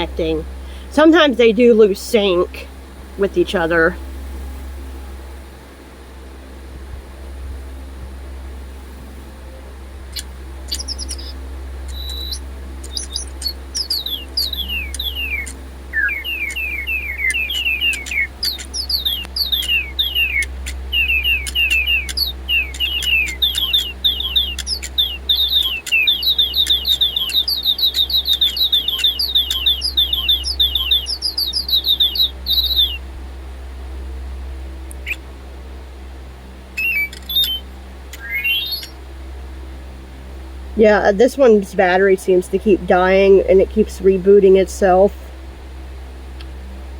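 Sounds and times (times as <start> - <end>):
steady low hum: 0.0 - 46.9
electronic toy bird chirps: 10.2 - 33.0, 36.8 - 39.0.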